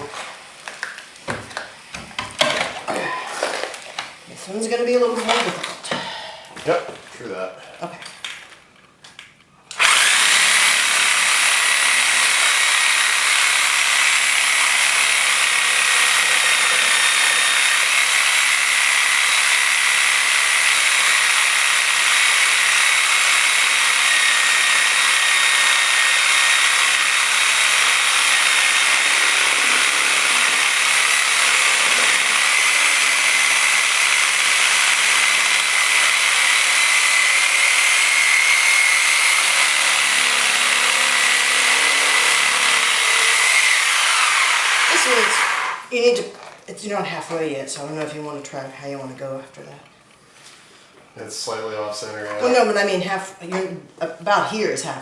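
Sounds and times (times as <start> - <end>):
reciprocating saw cutting: 9.8 - 46.2.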